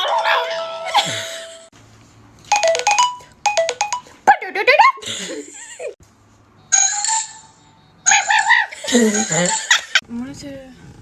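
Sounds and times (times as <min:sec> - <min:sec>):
electronic ringtone notes: 0:02.5 - 0:04.2.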